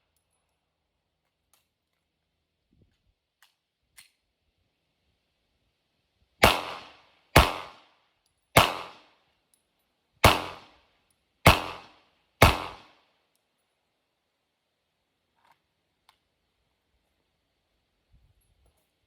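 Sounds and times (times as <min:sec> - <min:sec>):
pistol shots with echo: 0:06.4 - 0:07.8, 0:08.6 - 0:09.0, 0:10.2 - 0:10.7, 0:11.5 - 0:12.9.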